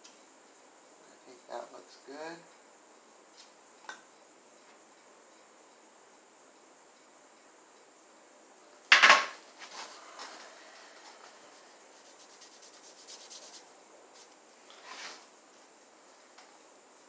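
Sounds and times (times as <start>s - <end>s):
light rubbing and scraping: 9.6s - 15.3s.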